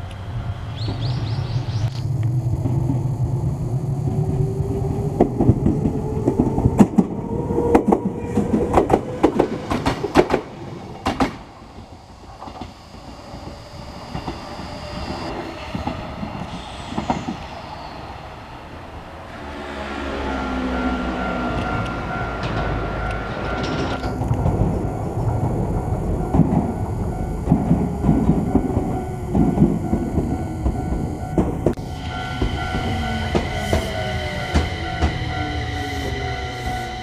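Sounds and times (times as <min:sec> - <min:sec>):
electric train motor whine: 0:00.0 - 0:37.0
train wheels clattering over joints: 0:05.1 - 0:11.6, 0:21.5 - 0:36.2.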